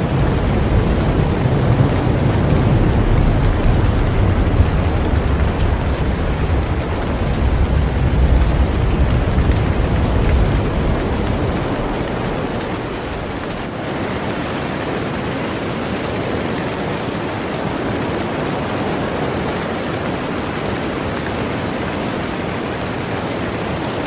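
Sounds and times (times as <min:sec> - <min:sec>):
deep low rumble: 0:00.0 - 0:13.7
heavy rain on a boat: 0:00.0 - 0:24.0.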